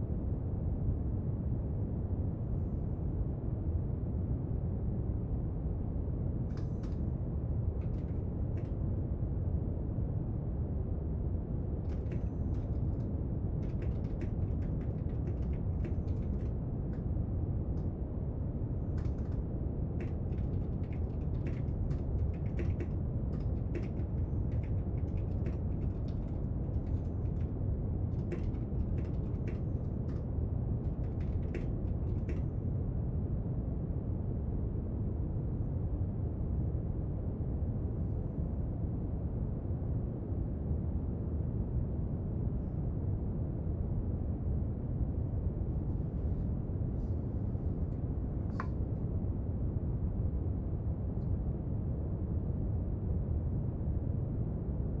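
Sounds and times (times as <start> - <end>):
small desk clicks and taps: 7.8 - 8.7, 11.9 - 16.5, 20.0 - 27.5, 28.1 - 30.2, 30.8 - 32.5, 48.4 - 48.8.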